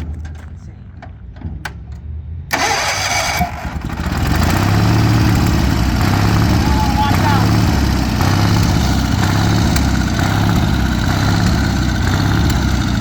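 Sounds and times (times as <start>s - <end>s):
tractor engine cranking and running: 0.0s - 13.0s
starter clicks: 8.8s - 13.0s.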